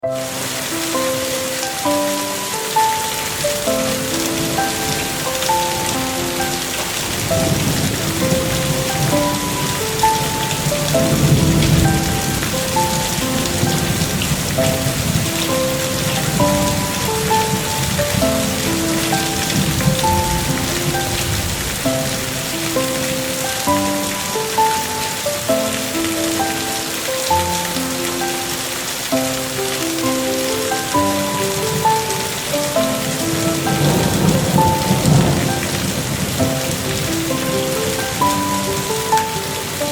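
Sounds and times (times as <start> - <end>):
rain pattering: 0.0 - 39.9
soft slow melody: 0.0 - 39.9
thunder rumble: 3.4 - 23.3, 31.4 - 38.3.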